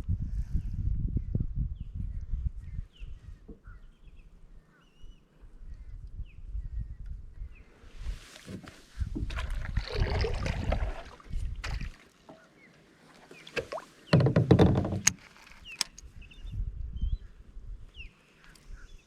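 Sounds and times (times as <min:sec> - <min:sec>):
water sloshing: 0:08.4 - 0:15.8
paddle knocking against kayak hull: 0:13.5 - 0:15.2.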